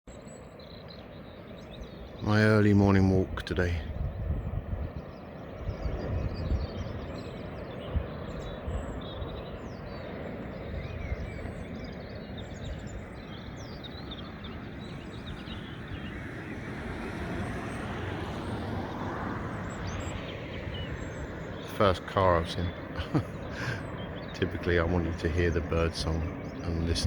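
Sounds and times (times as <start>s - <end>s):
small birds chirping: 0.1s - 27.0s
wind on microphone: 1.6s - 27.0s
sea surf rushing: 14.3s - 27.0s
car approaching: 14.8s - 22.6s.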